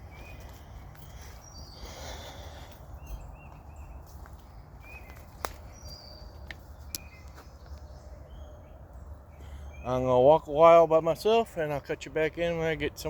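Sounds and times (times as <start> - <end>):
bird chirps: 0.0 - 10.6
footsteps through grass: 2.2 - 7.9.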